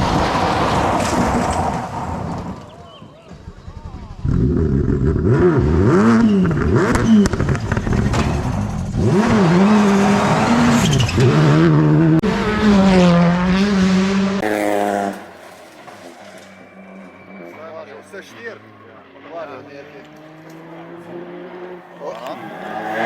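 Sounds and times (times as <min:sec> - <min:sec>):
rally car engine revving: 0:04.1 - 0:23.0.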